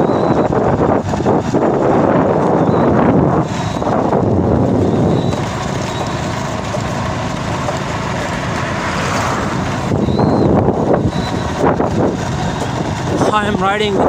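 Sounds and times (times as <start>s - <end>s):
motorbike engine running: 0.0s - 14.0s
wind buffeting microphone: 0.0s - 14.0s.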